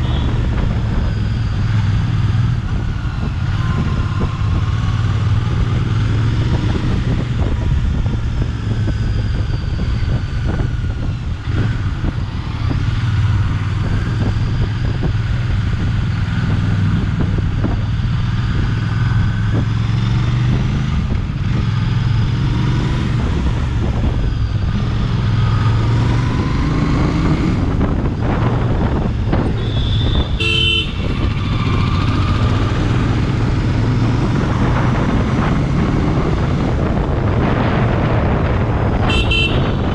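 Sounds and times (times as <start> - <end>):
motorcycle engine running: 0.0 - 39.9
wind noise on microphone: 0.0 - 39.9
vehicle horn toot: 29.6 - 31.2, 39.0 - 39.9.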